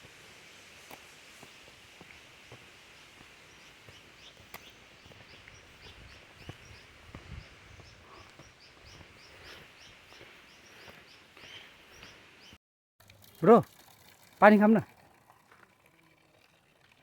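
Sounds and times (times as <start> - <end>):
steady hiss: 0.0 - 5.1
small bird chirping: 3.0 - 12.6.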